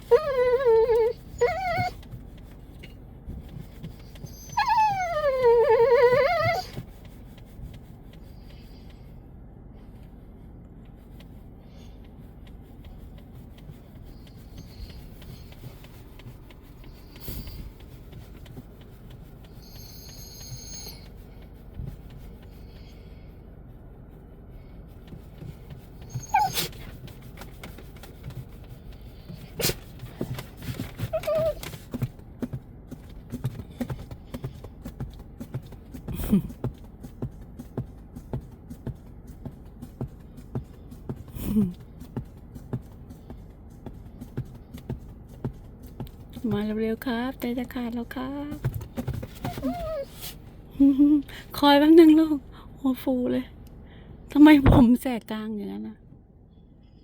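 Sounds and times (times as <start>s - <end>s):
dog whining: 0.0s - 2.1s, 4.0s - 6.8s, 14.1s - 15.8s, 19.4s - 21.3s, 25.9s - 26.9s, 29.3s - 32.0s, 49.2s - 50.4s.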